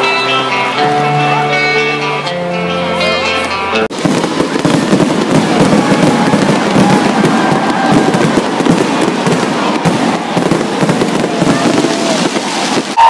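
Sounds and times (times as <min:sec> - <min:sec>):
fireworks crackling: 0:03.9 - 0:13.0.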